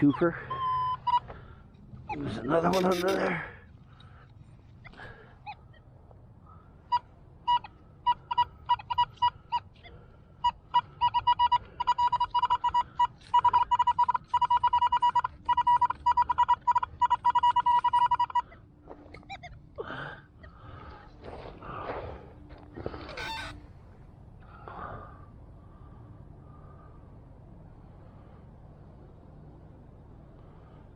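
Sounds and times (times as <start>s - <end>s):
metal detector probe beeping: 0.0s - 3.3s, 6.9s - 9.7s, 10.4s - 19.6s.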